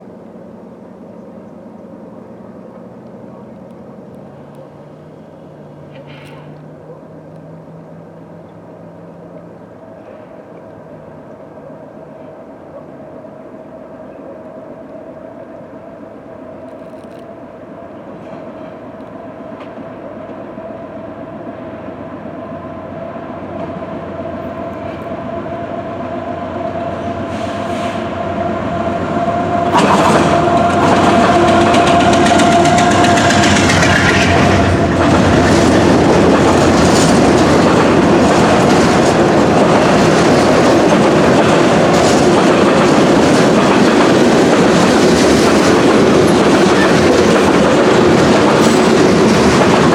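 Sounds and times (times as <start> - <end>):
diesel locomotive approaching: 0.0 - 49.9
train wheels clickety-clack: 29.7 - 49.9.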